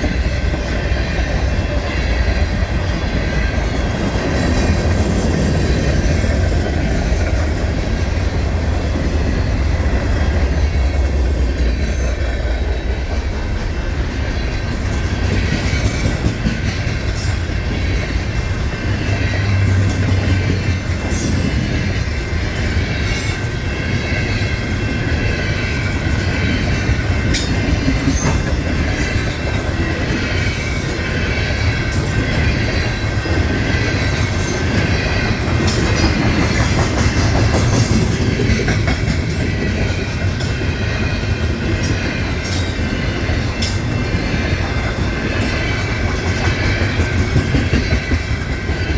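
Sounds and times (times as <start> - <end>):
freight train rumbling past: 0.0 - 48.9
wheels clicking over rail joints: 25.0 - 48.9.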